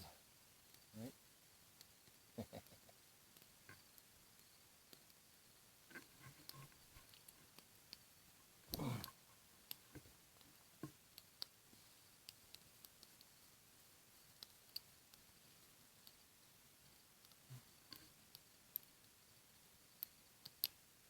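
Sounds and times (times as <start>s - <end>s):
campfire crackling: 0.0s - 20.7s.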